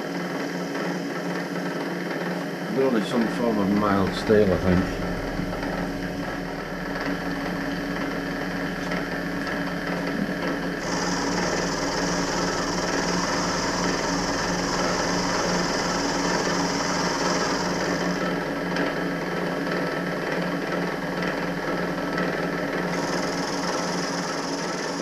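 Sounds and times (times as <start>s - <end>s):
milling machine motor humming: 0.0s - 25.0s
cutter hissing on metal: 10.1s - 18.6s, 22.8s - 25.0s.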